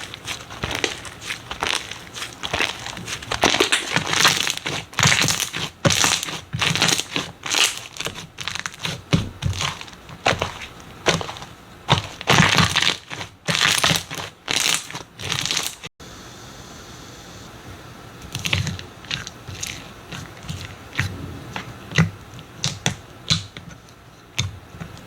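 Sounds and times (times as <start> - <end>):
crunchy slime crackling: 0.0 - 15.9.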